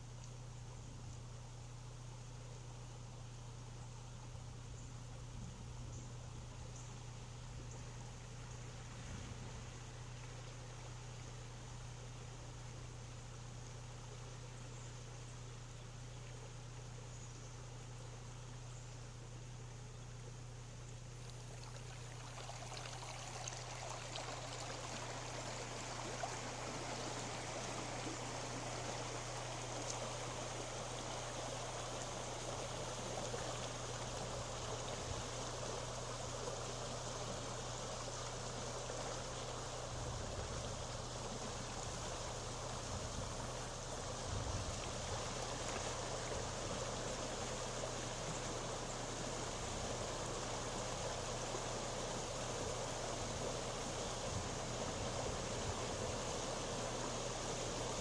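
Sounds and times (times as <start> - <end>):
floodwater rushing: 21.3 - 58.0.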